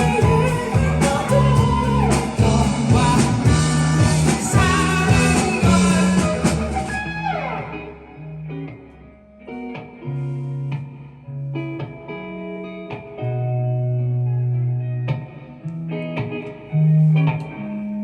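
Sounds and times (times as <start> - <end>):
live band playing: 0.0 - 8.0
electric guitar notes and chords: 0.0 - 18.0.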